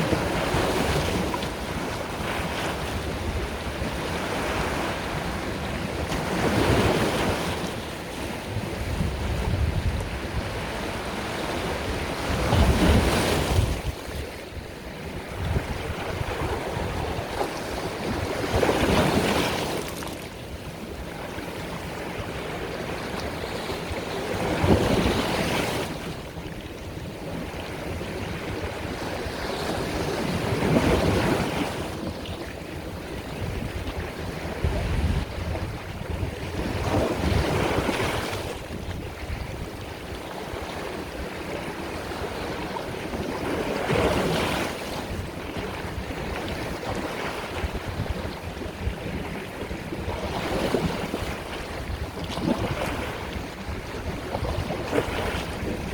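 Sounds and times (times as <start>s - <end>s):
sea waves breaking on shore: 0.0s - 55.9s.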